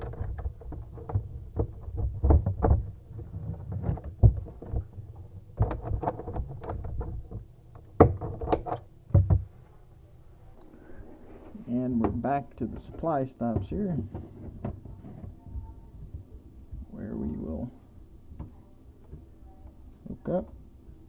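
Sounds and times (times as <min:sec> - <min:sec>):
tools knocking and clunking: 0:00.0 - 0:09.6, 0:12.0 - 0:16.3.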